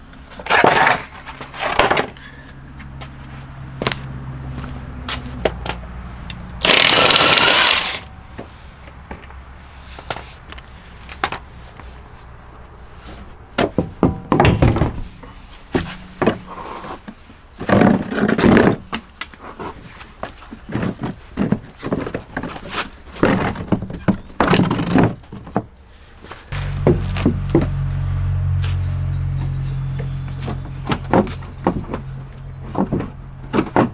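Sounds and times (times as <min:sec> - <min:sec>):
tool clicks and clattering: 0:06.6 - 0:08.1.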